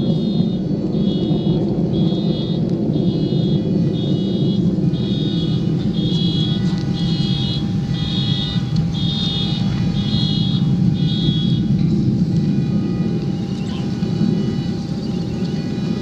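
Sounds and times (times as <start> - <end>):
low rumble of jet fly-by: 0.0 - 16.0
car horns beeping: 0.1 - 11.7.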